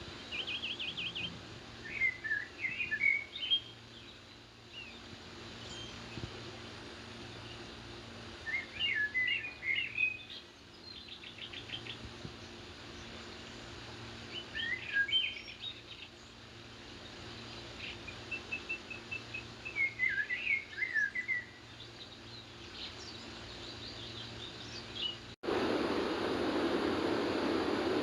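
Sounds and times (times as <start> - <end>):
birds chirping and warbling: 0.0 - 25.4
loud steady rushing noise: 25.4 - 28.0.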